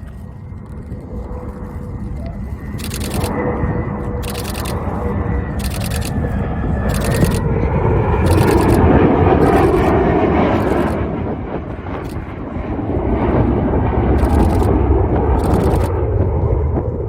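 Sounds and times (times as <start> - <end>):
jet aircraft engine rumble: 0.0 - 17.0
high-pitched clicking bursts: 2.8 - 3.4, 4.2 - 4.8, 5.6 - 6.2, 6.9 - 7.4, 8.2 - 9.9, 10.6 - 11.0, 14.2 - 14.8, 15.4 - 15.9.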